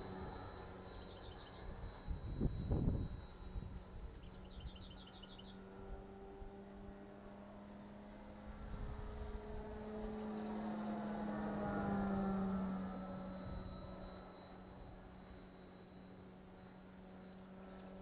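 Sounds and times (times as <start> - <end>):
model plane motor humming: 0.0 - 18.0
bird chirping: 0.5 - 2.6, 4.1 - 5.8, 9.8 - 12.7, 16.3 - 18.0.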